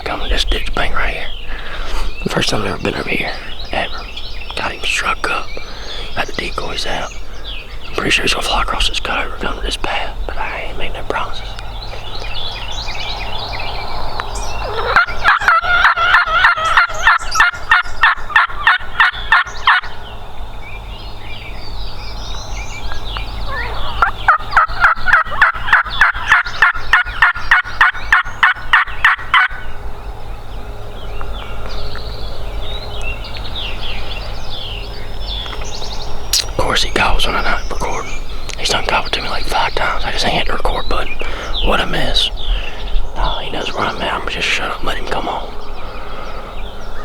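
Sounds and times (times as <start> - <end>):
faint songbird chirps: 0.0 - 47.0
wild turkey yelping: 14.2 - 20.0, 22.8 - 29.7.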